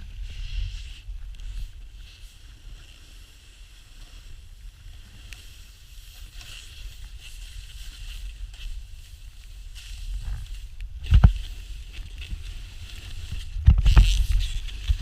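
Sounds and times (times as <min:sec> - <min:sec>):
wind rumbling on microphone: 0:00.0 - 0:15.0
snow hissing under sliding rider: 0:00.1 - 0:10.8.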